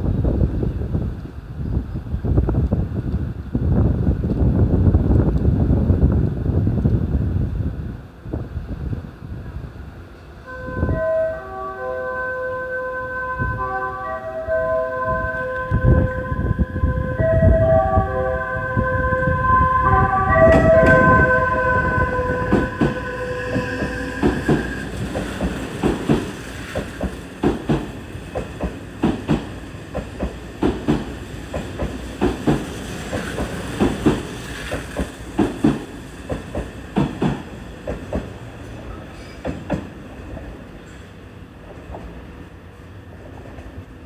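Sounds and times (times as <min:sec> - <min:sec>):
steady high tone: 0:10.5 - 0:26.0
train wheels clicking over rail joints: 0:20.2 - 0:42.2.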